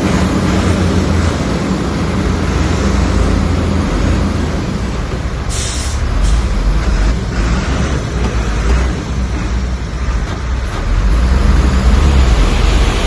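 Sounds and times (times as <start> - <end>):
diesel engine rumbling: 0.0 - 13.0
short hiss: 5.5 - 6.5.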